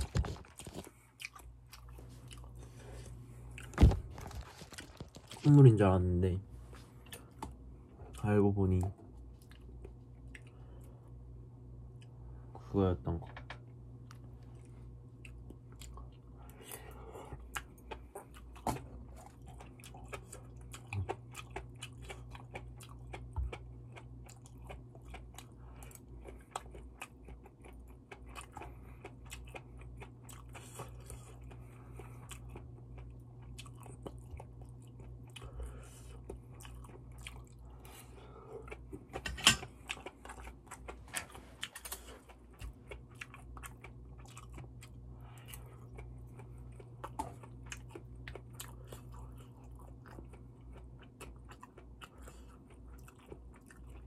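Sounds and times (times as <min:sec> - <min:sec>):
mouth chewing with crunches: 0:00.0 - 0:05.7, 0:06.7 - 0:11.0, 0:14.1 - 0:54.0.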